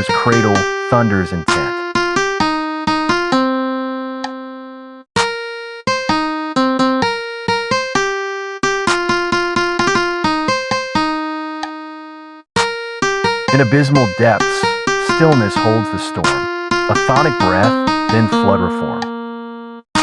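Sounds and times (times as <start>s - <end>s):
piano music: 13.0s - 19.8s.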